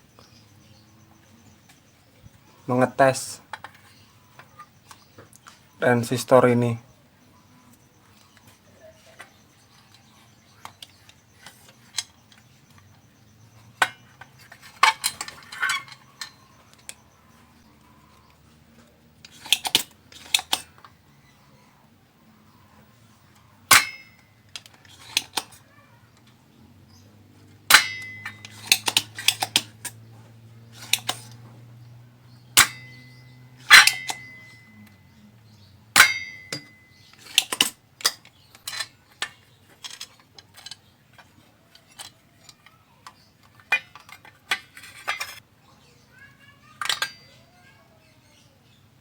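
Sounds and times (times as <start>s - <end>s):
metal tools clicking and clinking: 7.7s - 21.0s, 23.2s - 26.4s, 27.4s - 31.8s, 32.6s - 45.4s, 46.7s - 47.5s.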